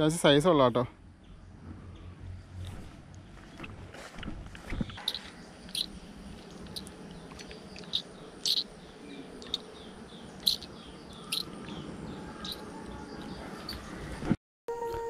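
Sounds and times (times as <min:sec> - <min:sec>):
birds chirping: 0:00.0 - 0:14.4.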